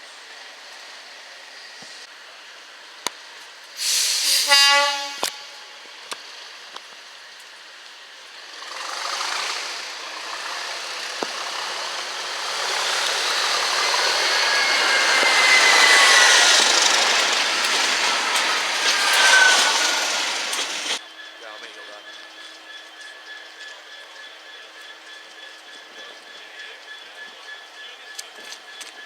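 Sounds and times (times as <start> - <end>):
train wheels rushing on rails: 0.3 - 29.0
high-pitched wheel squeals: 4.2 - 5.9, 10.1 - 29.0.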